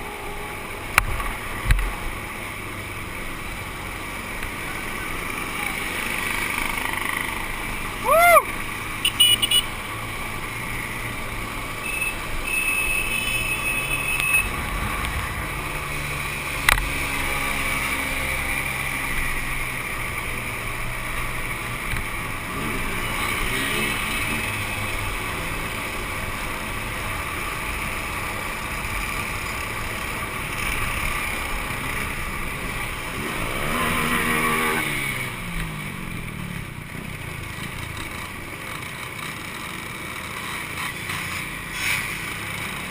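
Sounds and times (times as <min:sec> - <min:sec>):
two-stroke motorcycle engines revving: 0:00.0 - 0:42.9.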